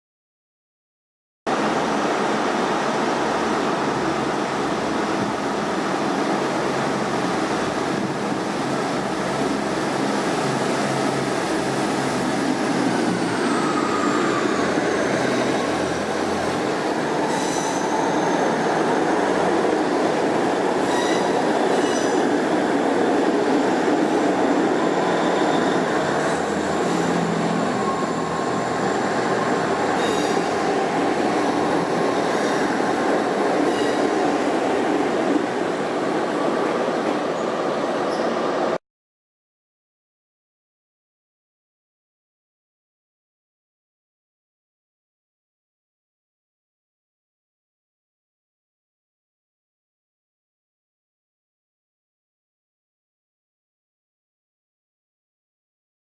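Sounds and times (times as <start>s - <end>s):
train rumbling on rails: 1.5s - 38.8s
brief high squealing: 20.8s - 22.2s, 30.0s - 30.5s, 33.7s - 34.1s.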